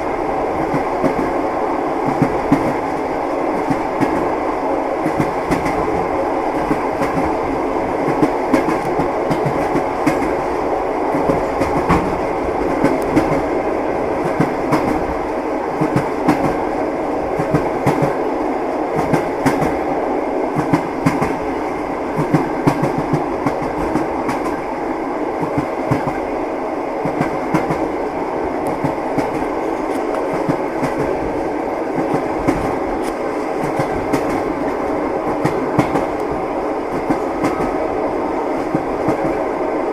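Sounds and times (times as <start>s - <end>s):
train wheels clicking over rail joints: 8.0s - 10.4s, 11.1s - 13.5s, 32.0s - 37.8s.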